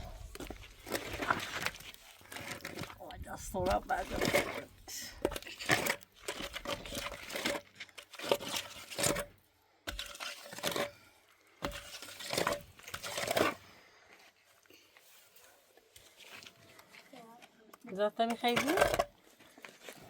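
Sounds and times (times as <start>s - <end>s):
crunching and rustling: 0.0s - 11.0s.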